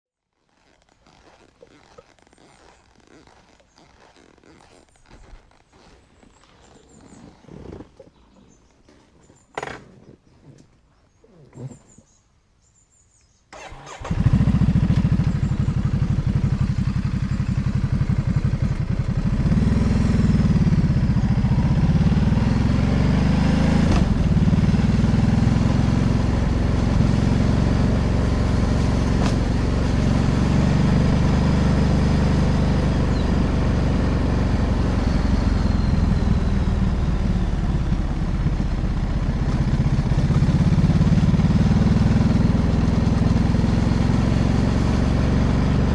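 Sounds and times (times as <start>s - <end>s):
motorcycle engine revving: 13.6s - 45.9s.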